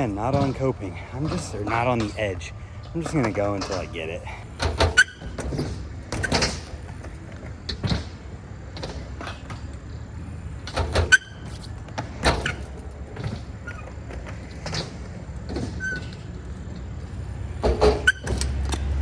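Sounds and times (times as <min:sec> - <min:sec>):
bike tyres rolling on ramp: 0:00.0 - 0:19.0.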